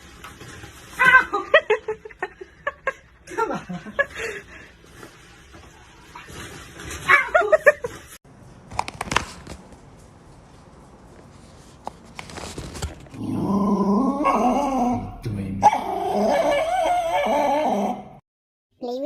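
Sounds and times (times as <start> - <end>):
dog whimpering: 15.6 - 18.1.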